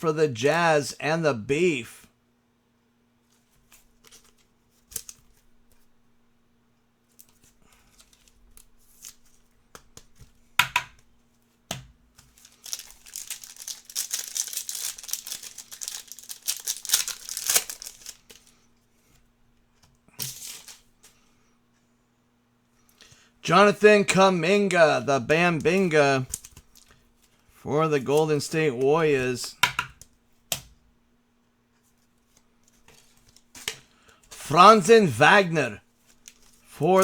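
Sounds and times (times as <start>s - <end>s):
card pack wrapper tearing: 12.4s - 18.5s.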